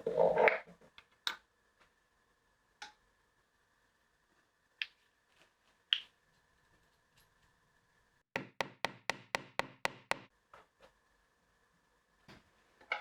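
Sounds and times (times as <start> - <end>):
knocking on wood: 8.4 - 10.3.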